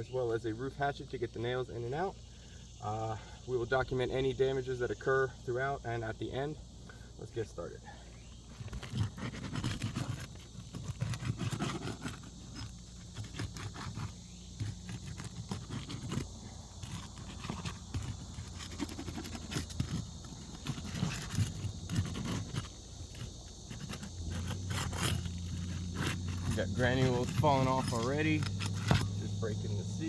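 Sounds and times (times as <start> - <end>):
pry bar scraping and knocking: 8.5 - 29.4.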